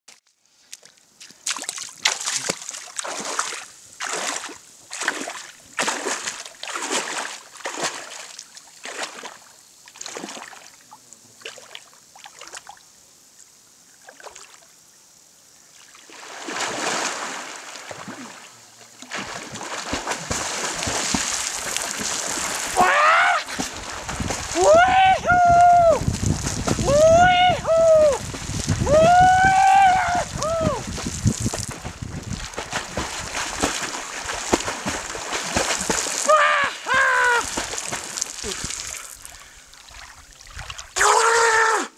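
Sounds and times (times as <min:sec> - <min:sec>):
rhythmic water splashing: 0:00.7 - 0:10.7, 0:19.0 - 0:25.1, 0:26.0 - 0:27.0, 0:27.9 - 0:41.0
steady rush of water: 0:01.4 - 0:12.8, 0:15.8 - 0:41.4.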